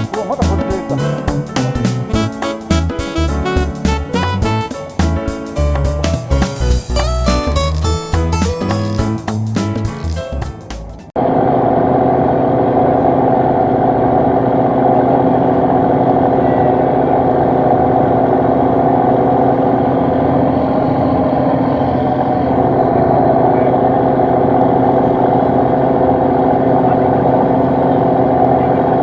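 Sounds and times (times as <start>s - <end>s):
boat engine droning: 0.0s - 7.1s, 11.2s - 29.0s
background music: 0.0s - 11.1s.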